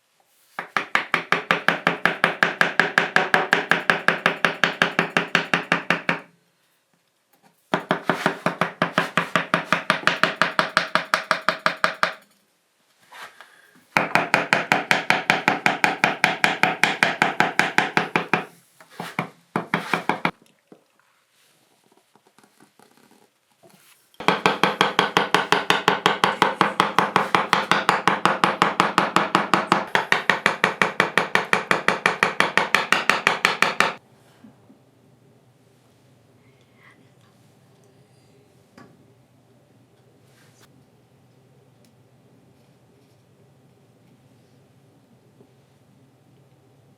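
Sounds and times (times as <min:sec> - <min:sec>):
hand tool knocking on wood: 0:00.6 - 0:06.3, 0:07.8 - 0:12.2, 0:14.0 - 0:20.4, 0:24.2 - 0:34.0.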